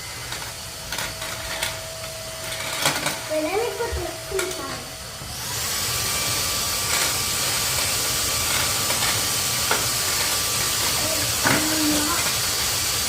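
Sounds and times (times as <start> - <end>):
vacuum cleaner motor running: 0.0 - 13.0.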